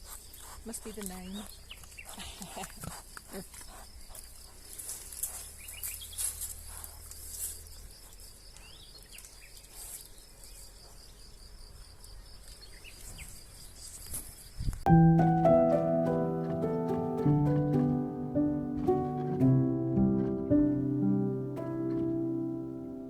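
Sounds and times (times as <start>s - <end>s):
insects trilling: 0.0s - 14.6s
bird chirps: 5.4s - 6.4s.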